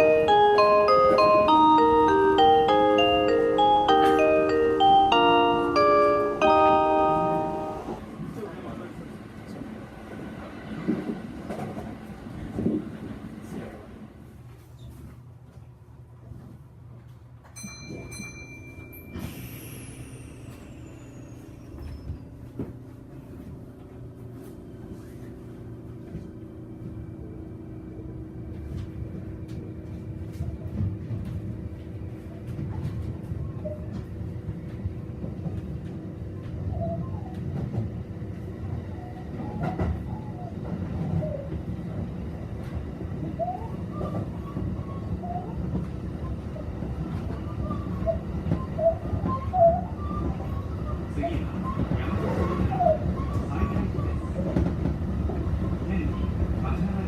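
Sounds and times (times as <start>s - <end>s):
electric train rumble: 0.0s - 57.0s
creaking squeaks under floor: 20.4s - 22.5s.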